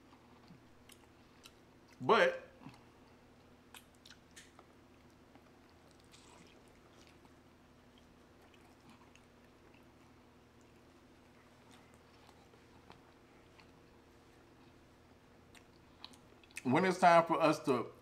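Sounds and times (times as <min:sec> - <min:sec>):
people chewing: 0:00.0 - 0:02.0, 0:02.6 - 0:16.7
low room hum: 0:00.0 - 0:18.0
soft biting clicks: 0:02.6 - 0:14.0, 0:15.5 - 0:16.7.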